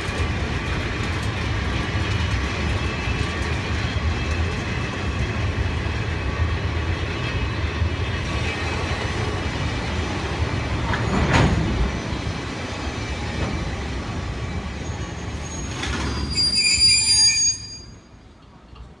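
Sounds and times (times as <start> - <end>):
freight train rumbling: 0.0 - 19.0
train clunks: 8.2 - 16.9
metallic wheel and brake squeal: 14.8 - 18.2.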